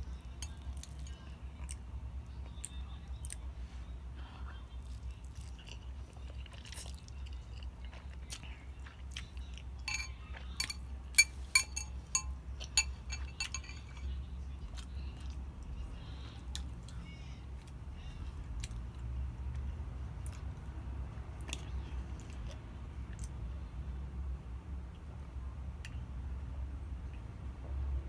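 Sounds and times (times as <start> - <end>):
steady low hum: 0.0 - 28.0
chewing noodles: 4.8 - 11.5
cutlery clinking against dish: 9.8 - 14.2.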